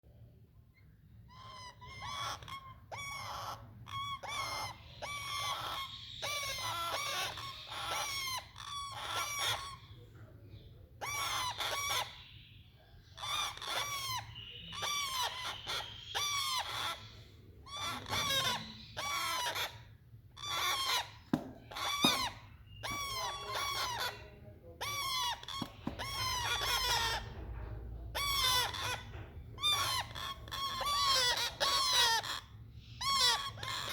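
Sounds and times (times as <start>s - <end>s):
parrot chicks calling: 1.2s - 10.0s, 11.0s - 27.5s, 28.1s - 33.9s.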